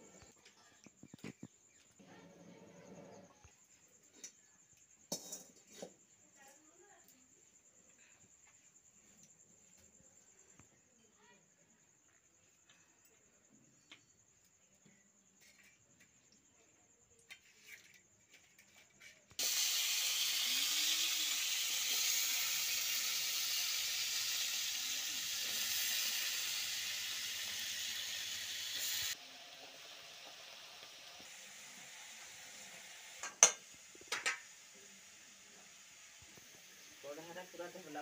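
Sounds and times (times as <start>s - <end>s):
vegetables sizzling in hot oil: 19.4s - 38.0s.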